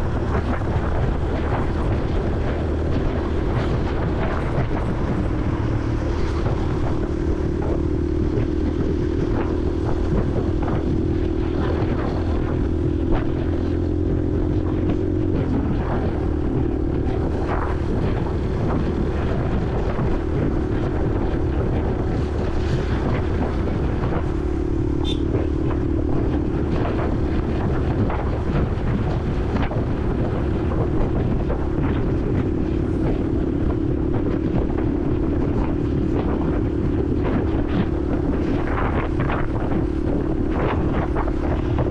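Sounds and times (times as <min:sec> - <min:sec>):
motorcycle engine running: 0:00.0 - 0:41.9
wind on microphone: 0:00.0 - 0:41.9.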